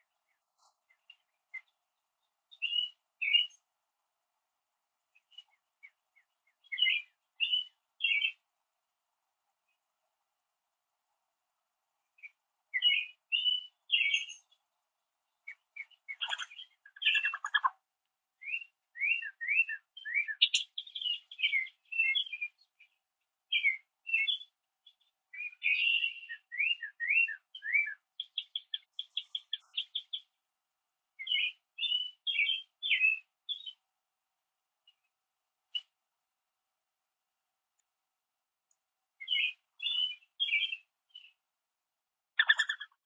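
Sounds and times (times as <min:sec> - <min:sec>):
small songbird chirping and singing: 0:00.3 - 0:03.6, 0:05.2 - 0:08.4, 0:12.1 - 0:14.6, 0:15.3 - 0:17.7, 0:18.4 - 0:30.4, 0:31.2 - 0:33.8, 0:39.2 - 0:41.4, 0:42.4 - 0:43.0.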